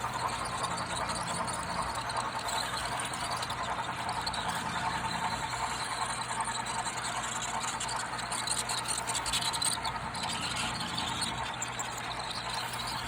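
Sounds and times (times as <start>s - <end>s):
electric motor whine: 0.0s - 13.0s
rapid ticking of wheels on track: 0.0s - 13.0s.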